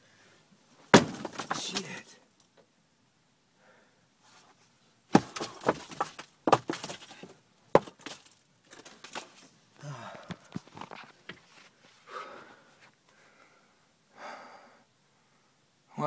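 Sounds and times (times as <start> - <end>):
house structure cracking: 0.9 - 2.1, 5.1 - 9.4.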